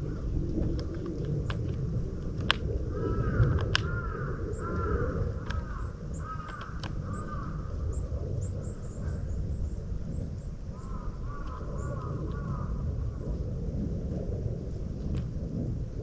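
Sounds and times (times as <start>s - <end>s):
sharp clicks: 0.6s - 2.8s, 3.4s - 4.0s, 4.6s - 7.3s
crow cawing: 2.9s - 8.1s, 10.7s - 13.2s
small birds chirping: 2.9s - 12.7s.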